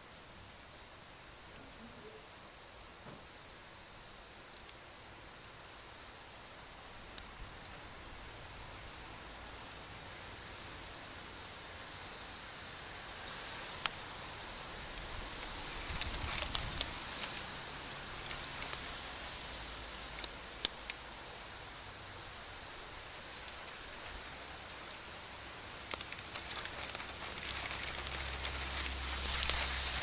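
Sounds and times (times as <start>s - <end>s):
heavy rain falling: 9.9s - 30.0s
rain drop impacts: 12.6s - 30.0s.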